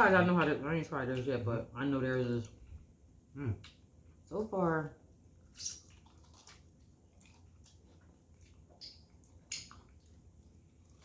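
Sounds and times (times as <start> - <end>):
wet chewing mouth sounds: 5.5 - 11.0.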